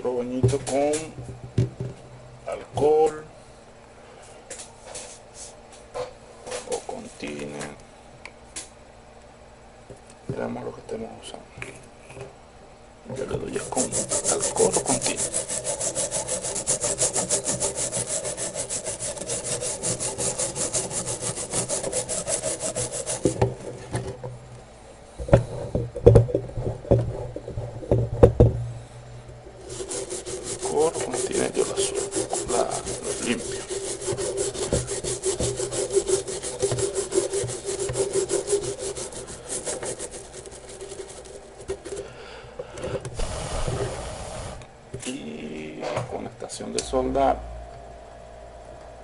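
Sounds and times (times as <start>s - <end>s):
steady hum: 0.0s - 49.0s
brush scrubbing circuit board: 13.2s - 24.1s, 29.6s - 42.0s.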